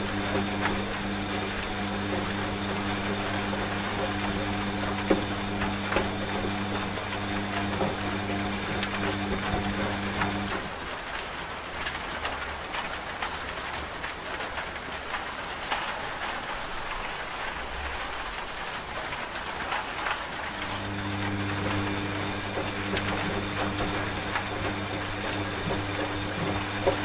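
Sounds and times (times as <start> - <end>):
washing machine motor hum: 0.0 - 10.8, 20.4 - 27.0
steady rain: 0.0 - 27.0.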